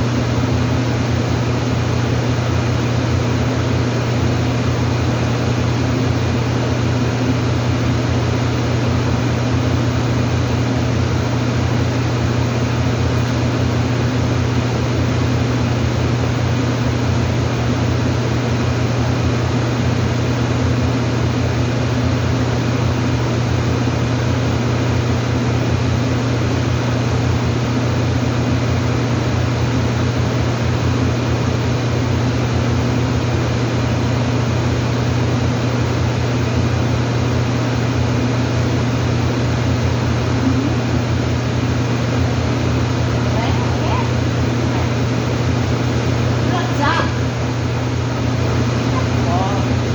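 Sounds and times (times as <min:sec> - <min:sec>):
machine drone: 0:39.4 - 0:49.9.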